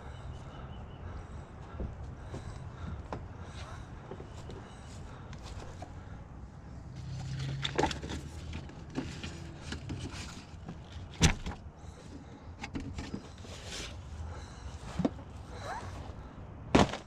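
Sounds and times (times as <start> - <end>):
low vehicle rumble: 0.0 - 17.0
plastic containers knocking and clattering: 16.7 - 17.0.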